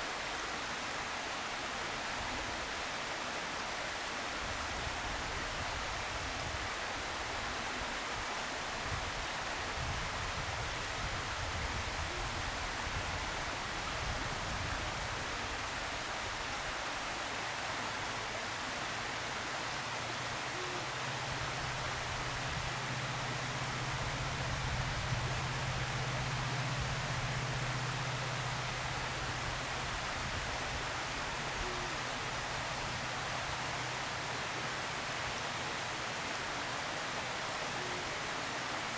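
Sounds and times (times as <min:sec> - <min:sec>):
steady outdoor hiss: 0:00.0 - 0:38.9
low steady hum: 0:20.6 - 0:35.9.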